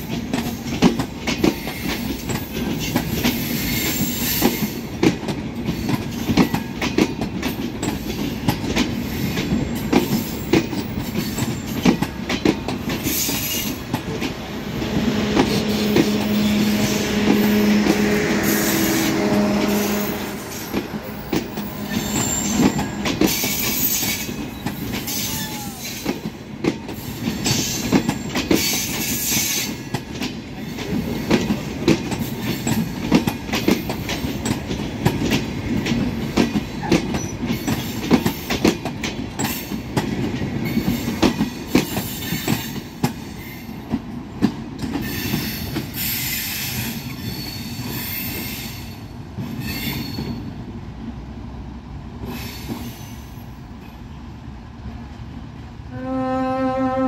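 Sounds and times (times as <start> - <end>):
wheels clacking over rail joints: 0.0 - 48.6
train rumble: 0.0 - 57.0
high hiss from wheels: 13.0 - 24.5, 45.0 - 50.4, 52.2 - 53.6.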